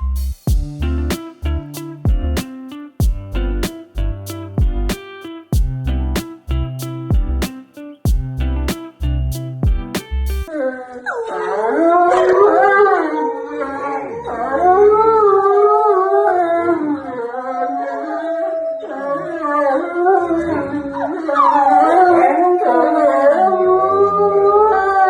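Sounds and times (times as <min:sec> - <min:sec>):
dog howling: 0:10.5 - 0:25.0.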